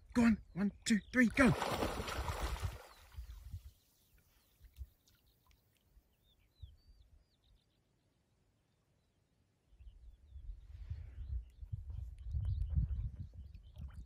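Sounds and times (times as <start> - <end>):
low wind rumble: 9.9 - 14.0.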